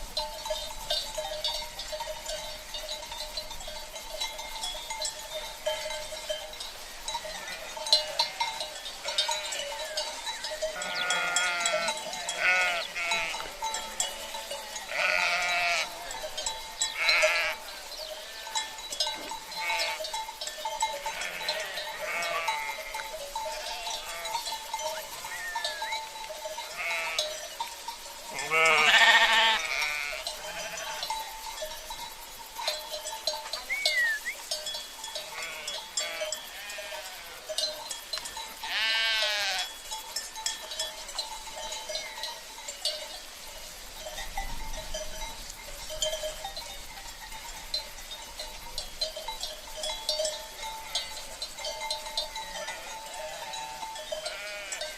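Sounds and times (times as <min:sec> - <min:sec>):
animal bells ringing: 0:00.0 - 0:54.9
sheep bleating: 0:10.7 - 0:16.2, 0:17.0 - 0:18.6, 0:19.6 - 0:20.1, 0:21.0 - 0:24.4, 0:26.7 - 0:27.4, 0:28.4 - 0:31.1, 0:35.2 - 0:37.5, 0:38.7 - 0:39.7, 0:52.6 - 0:54.9.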